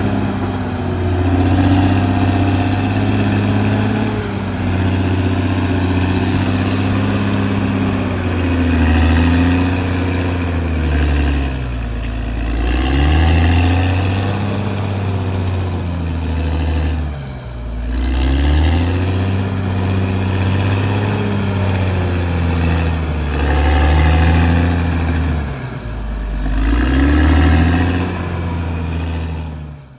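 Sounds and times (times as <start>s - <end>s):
bulldozer diesel engine under load: 0.0s - 29.9s.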